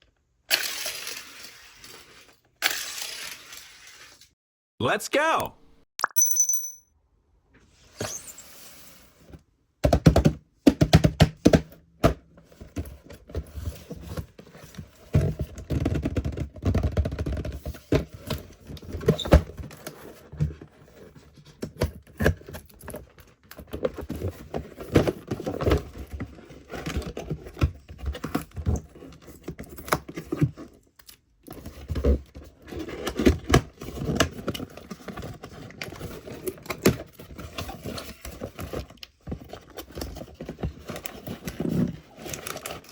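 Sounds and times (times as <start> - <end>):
toy cars clicking and clattering: 0.5 - 4.2.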